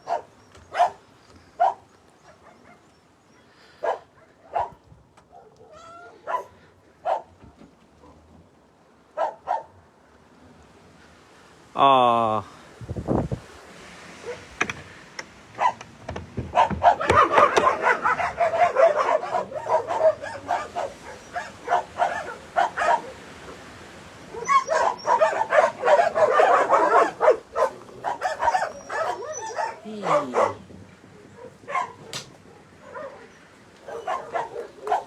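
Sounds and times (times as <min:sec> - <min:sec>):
dogs barking and yipping: 0:00.0 - 0:03.0, 0:03.8 - 0:07.4, 0:09.2 - 0:09.8, 0:14.2 - 0:14.7, 0:15.4 - 0:23.5, 0:24.2 - 0:35.0.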